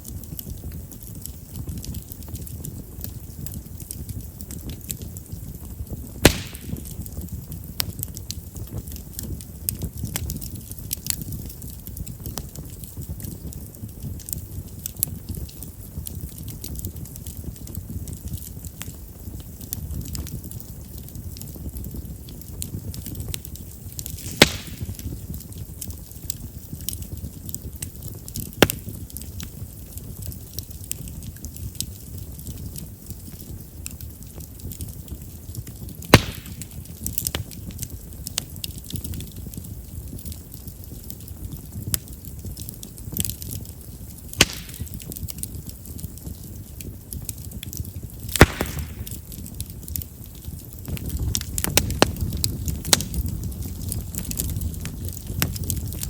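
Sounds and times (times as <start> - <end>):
fire crackles: 0.0 - 56.0
rumble of flames: 0.0 - 56.0
loud pop of burning wood: 5.9 - 13.5, 21.0 - 25.6, 26.2 - 29.3, 35.6 - 39.6, 44.2 - 46.4, 47.3 - 56.0
loud wood pops: 6.2 - 7.0, 24.1 - 25.0, 28.6 - 28.9, 36.1 - 36.8, 44.4 - 45.0, 48.3 - 49.2.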